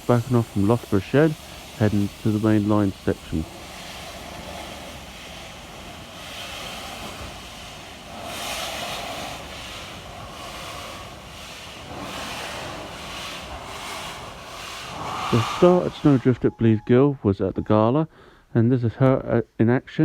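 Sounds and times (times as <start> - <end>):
wind noise on microphone: 13.5 - 16.8.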